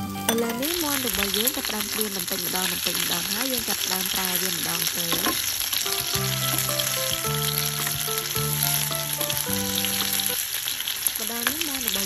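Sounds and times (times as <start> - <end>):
chicken frying in oil: 0.0 - 12.0
metal tongs turning food: 0.2 - 10.3, 11.2 - 12.0
music of long held notes: 5.9 - 10.4.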